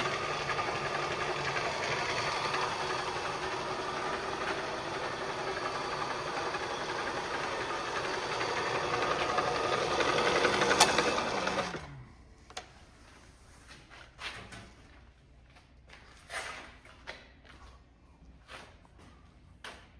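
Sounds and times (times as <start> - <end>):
milling machine motor running: 0.0 - 11.9
motor winding down whine: 0.0 - 12.1.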